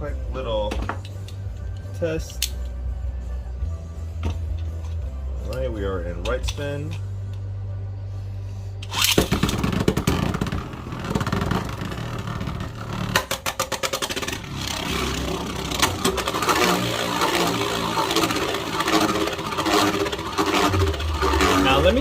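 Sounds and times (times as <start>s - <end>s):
spinning top whirring and scraping: 8.8s - 22.0s
rapid clicks and clatter: 9.0s - 22.0s.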